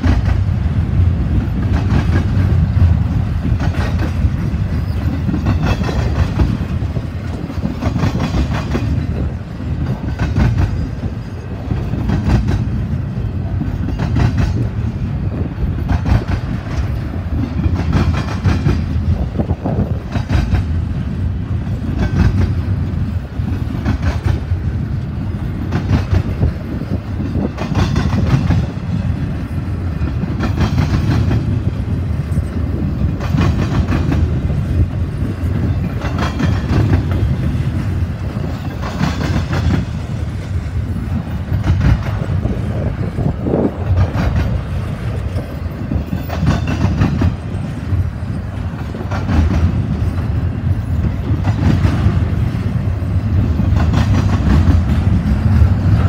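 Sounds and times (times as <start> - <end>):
rumble of steel wheels on rail: 0.0 - 56.0.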